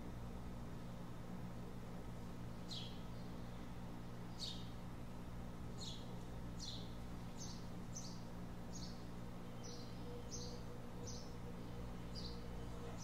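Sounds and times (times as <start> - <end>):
low background hum: 0.0 - 13.0
bird chirping: 2.7 - 3.7, 4.3 - 4.8, 5.8 - 13.0.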